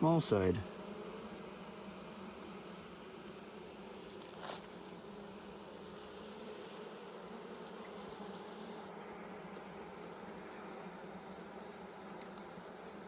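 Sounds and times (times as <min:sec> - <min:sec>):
bees buzzing: 0:00.0 - 0:13.0
short hiss of noise: 0:04.2 - 0:04.8.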